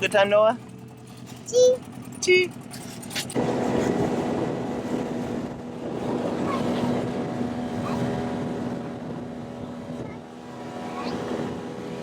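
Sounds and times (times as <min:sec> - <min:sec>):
outboard motor running: 0:00.0 - 0:12.0
water noise: 0:00.0 - 0:12.0
wind noise: 0:03.4 - 0:12.0.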